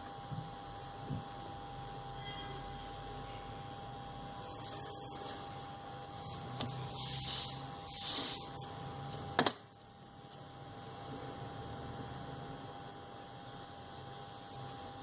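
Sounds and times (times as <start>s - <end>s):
pencil scratching on paper: 4.4s - 8.6s.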